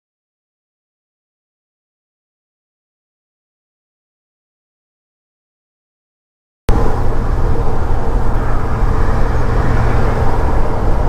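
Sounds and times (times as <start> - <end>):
road noise inside cab: 6.7 - 11.0
truck engine rumble: 6.7 - 11.0.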